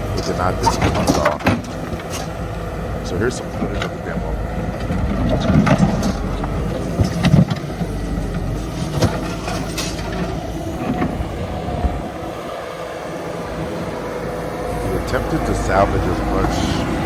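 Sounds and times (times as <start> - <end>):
demolition knocks and clanks: 0.0 - 12.1
engine running: 0.0 - 17.0.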